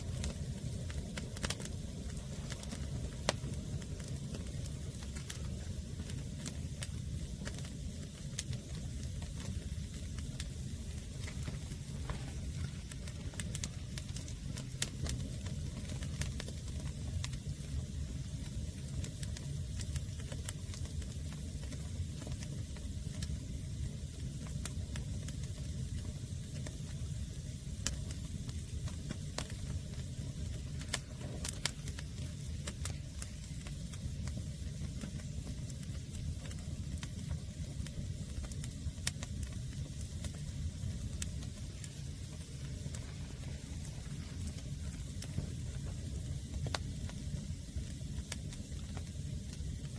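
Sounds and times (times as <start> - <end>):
fire crackling and popping: 0.0 - 49.9
fire low rumble: 0.0 - 49.9.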